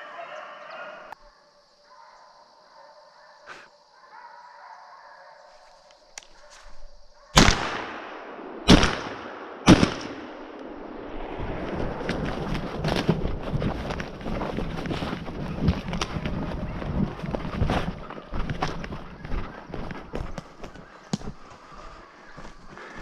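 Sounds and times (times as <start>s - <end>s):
loud gunshots with echo: 7.4s - 11.1s
rustling with crackles: 10.4s - 23.0s.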